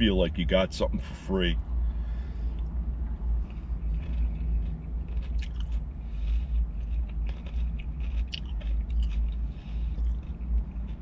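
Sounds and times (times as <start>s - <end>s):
low rumble inside car: 0.0s - 11.0s
chewing food: 2.6s - 11.0s.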